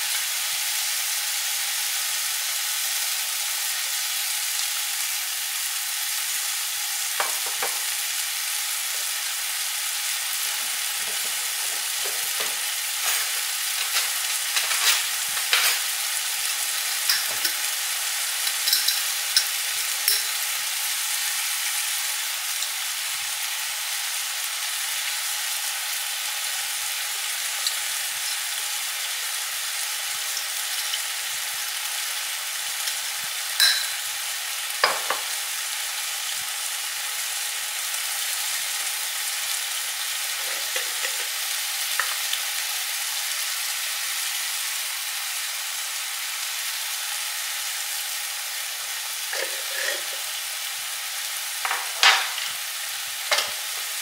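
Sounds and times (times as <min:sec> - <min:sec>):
food sizzling in oil: 0:00.0 - 0:54.0.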